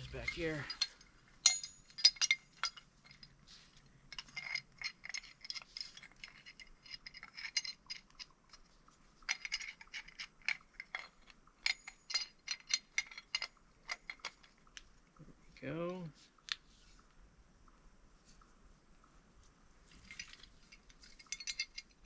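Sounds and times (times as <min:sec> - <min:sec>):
metal tools clanking together: 0:00.0 - 0:03.4, 0:04.1 - 0:08.6, 0:09.3 - 0:14.6, 0:19.9 - 0:22.0.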